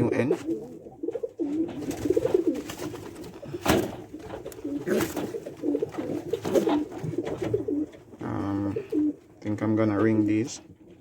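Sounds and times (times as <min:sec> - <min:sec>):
pigeons cooing: 0:00.0 - 0:09.4
rustling: 0:00.4 - 0:09.2.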